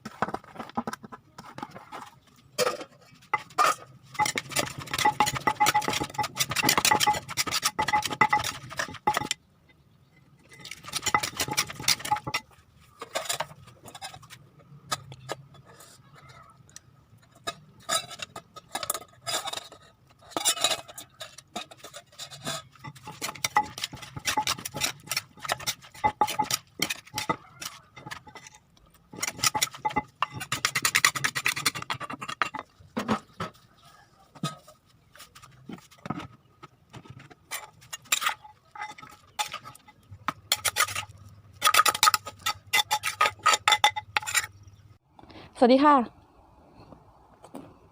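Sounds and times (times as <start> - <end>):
utensils and dishes clinking: 2.6 - 9.4, 17.2 - 33.5, 37.5 - 44.6.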